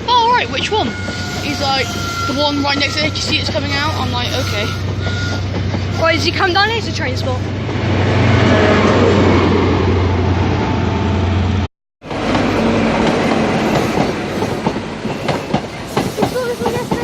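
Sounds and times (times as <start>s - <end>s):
wheels clacking over rail joints: 0.0s - 7.8s, 12.1s - 17.0s
diesel train engine hum: 0.0s - 17.0s
rushing rail noise: 0.0s - 17.0s.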